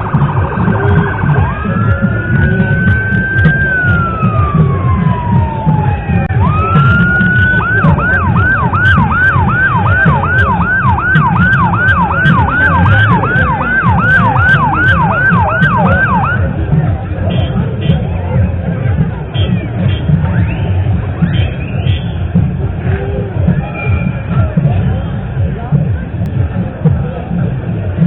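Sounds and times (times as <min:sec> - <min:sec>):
emergency siren wail and yelp: 0:00.0 - 0:16.5
steady low rumble: 0:00.0 - 0:28.0.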